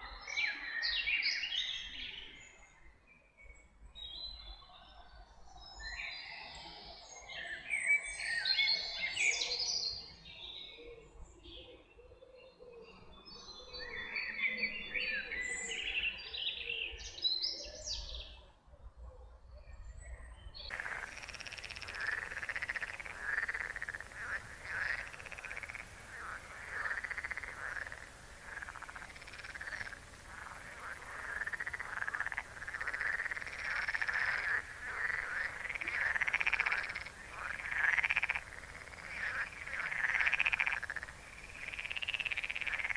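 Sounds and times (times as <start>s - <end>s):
songbirds singing: 0.0s - 42.9s
frogs croaking chorus: 20.7s - 42.9s.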